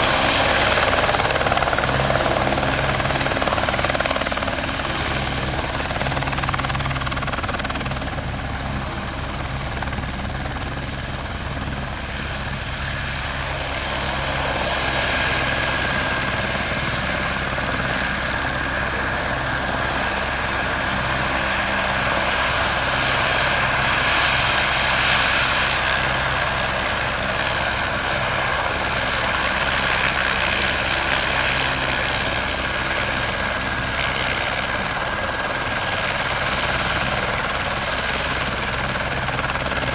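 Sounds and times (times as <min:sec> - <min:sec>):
helicopter rotor beat: 0:00.0 - 0:39.9
helicopter turbine whine: 0:00.0 - 0:39.9.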